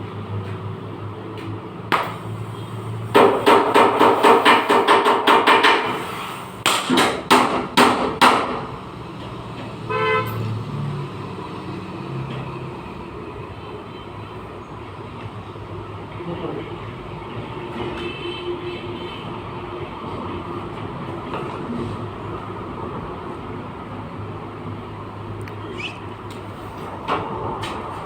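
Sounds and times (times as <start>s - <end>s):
hammer striking sheet metal: 1.9s - 2.4s, 3.1s - 8.8s.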